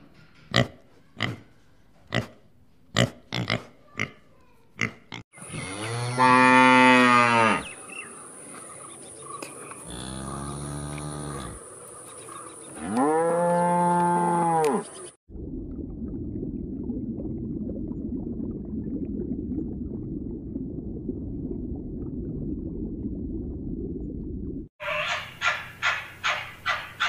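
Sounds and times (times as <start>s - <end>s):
cow mooing: 5.5s - 7.7s, 9.9s - 11.6s, 12.8s - 14.9s
low steady rumble: 15.3s - 24.7s.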